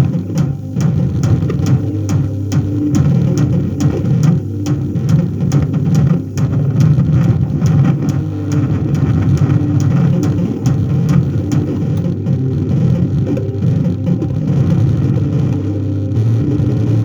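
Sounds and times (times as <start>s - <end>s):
sharp clicks: 0.0s - 12.2s
low rumbling electronic noise: 0.0s - 17.0s
steady electrical hum: 0.0s - 17.0s.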